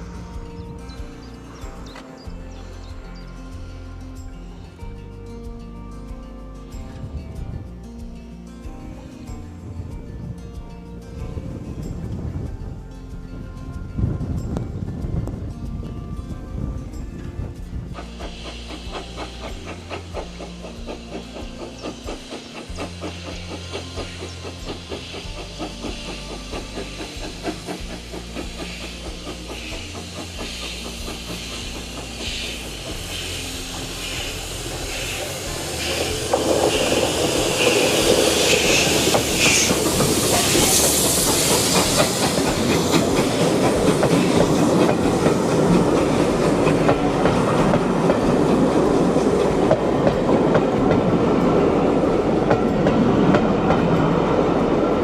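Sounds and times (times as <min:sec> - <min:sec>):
steam train rushing past: 0:00.0 - 0:05.2, 0:06.0 - 0:55.0
train wheels clicking on rail joints: 0:17.4 - 0:55.0
steam hissing: 0:17.7 - 0:55.0.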